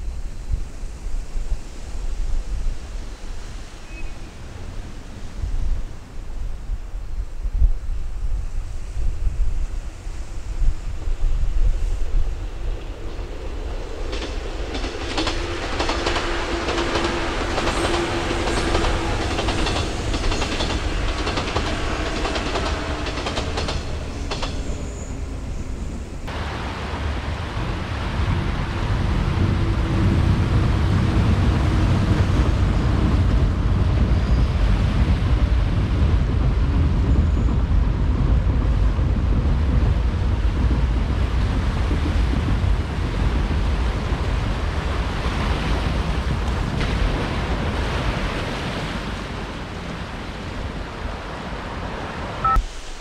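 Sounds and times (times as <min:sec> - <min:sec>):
electric train running past: 0:00.0 - 0:53.0
wind on microphone: 0:00.0 - 0:53.0
wheels clicking over rail joints: 0:14.0 - 0:25.4.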